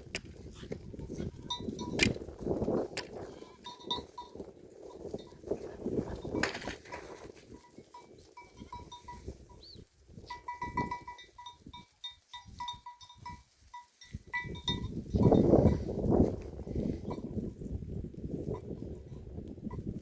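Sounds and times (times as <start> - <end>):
small bells ringing: 1.2 - 2.0, 3.2 - 5.6, 7.5 - 15.9.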